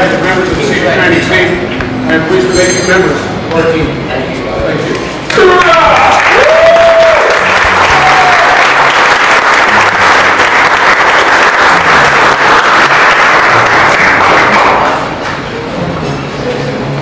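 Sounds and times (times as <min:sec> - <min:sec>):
crowd clapping: 0:05.2 - 0:15.5.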